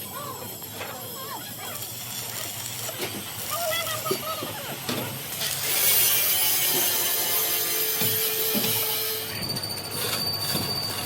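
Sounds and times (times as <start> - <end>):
power tool grinding steel: 5.2 - 9.3.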